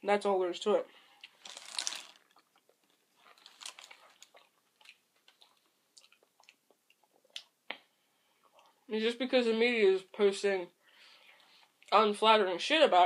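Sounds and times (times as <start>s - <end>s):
person biting and chewing: 1.2s - 7.5s.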